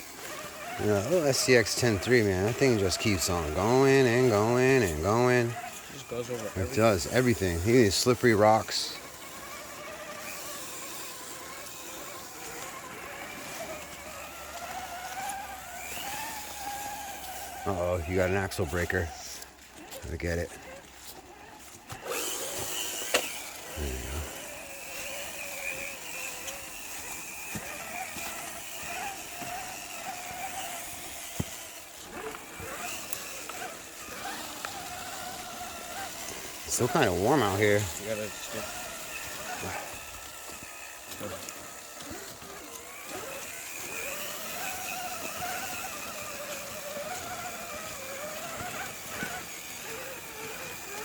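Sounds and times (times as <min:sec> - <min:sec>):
electric motor whine: 0:00.0 - 0:51.0
lower motor whine: 0:00.0 - 0:51.0.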